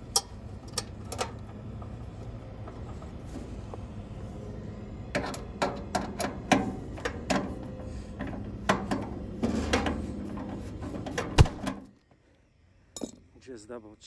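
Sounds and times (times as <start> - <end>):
steady low hum: 0.0 - 14.0
hand tools clicking and knocking: 5.1 - 11.7.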